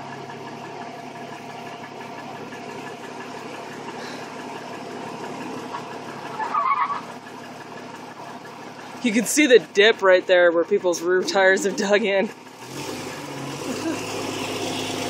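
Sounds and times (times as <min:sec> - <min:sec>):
off-road engine idling: 0:00.0 - 0:15.0
suspension squeak: 0:05.7 - 0:08.6.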